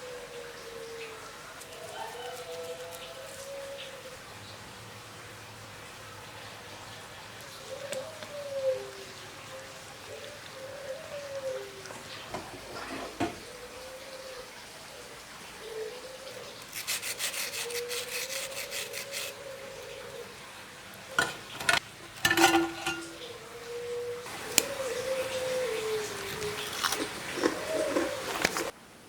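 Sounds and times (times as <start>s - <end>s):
kitchenware knocks and clatter: 12.3s - 13.4s, 21.2s - 23.2s
utensil stirring in a pot: 16.6s - 19.5s.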